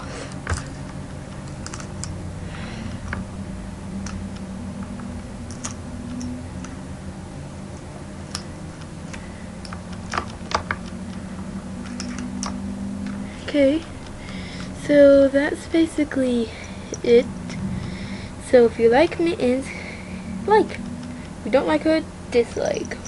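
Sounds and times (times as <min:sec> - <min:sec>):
low steady hum: 0:00.0 - 0:23.0
keyboard and mouse clicks: 0:00.3 - 0:02.2, 0:04.0 - 0:06.8, 0:07.8 - 0:11.2, 0:11.8 - 0:13.2.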